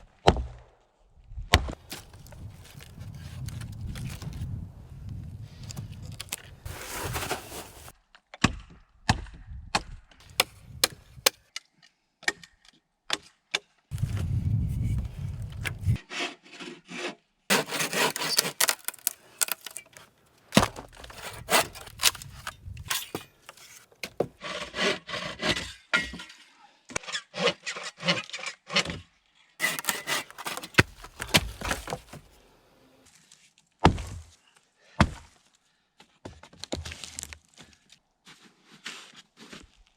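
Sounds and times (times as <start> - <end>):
scraping and rubbing wood: 13.9 - 25.7, 29.6 - 32.4
wood cracking: 17.5 - 24.2, 29.6 - 32.4.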